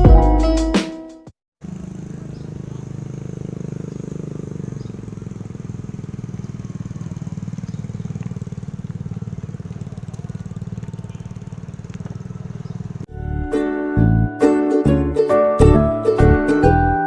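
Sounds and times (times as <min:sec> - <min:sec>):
music: 0:00.0 - 0:01.3, 0:13.1 - 0:17.0
engine running with low pulsing: 0:01.6 - 0:13.1.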